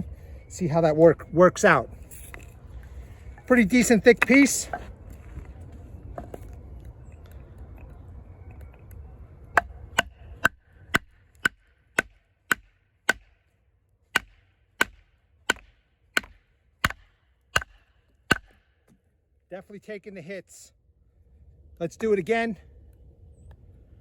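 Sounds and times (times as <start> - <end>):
baton whacking knife into wood: 14.2 - 18.7.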